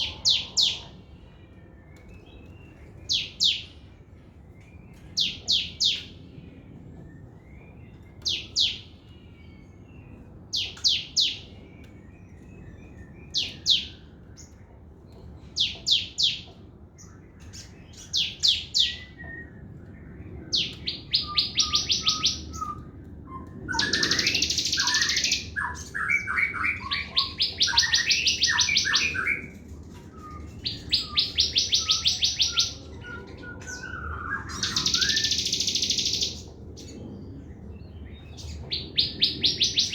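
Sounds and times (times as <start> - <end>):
fast rattling bird trills: 23.7 - 32.8, 33.6 - 36.4.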